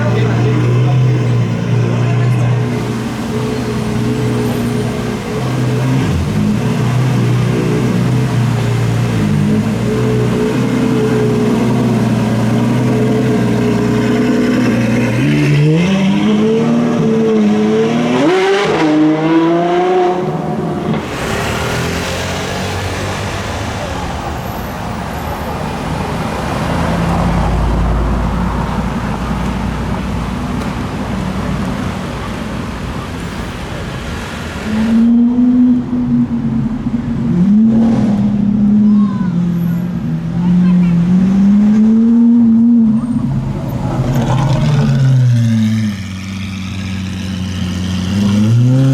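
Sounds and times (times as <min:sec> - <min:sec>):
sports car engine accelerating: 0:00.0 - 0:24.2, 0:34.2 - 0:48.9
rushing noise: 0:01.1 - 0:40.2.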